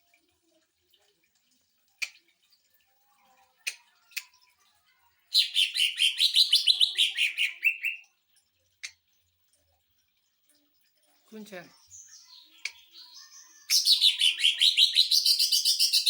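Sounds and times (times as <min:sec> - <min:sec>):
bird rapid stuttering song: 0:05.4 - 0:08.0.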